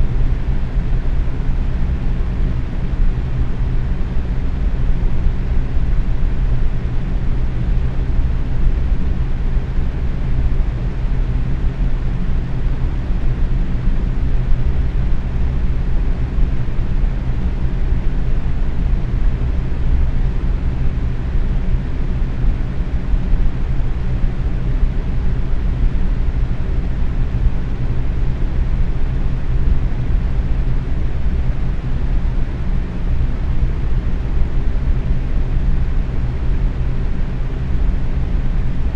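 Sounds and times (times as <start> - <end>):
faint motor hum: 0.0 - 38.9
fan air whoosh: 0.0 - 38.9.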